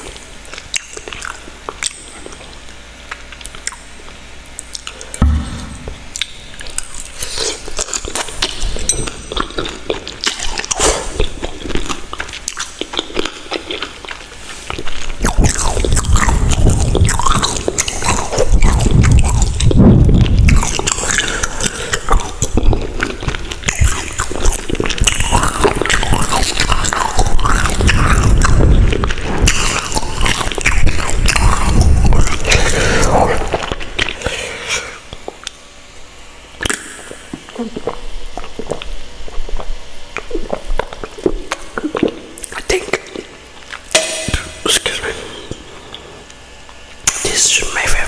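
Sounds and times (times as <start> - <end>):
wet mouth clicks and smacks: 0.0 - 34.2, 36.6 - 45.1
chewing and biting food: 0.0 - 35.7, 36.6 - 44.6.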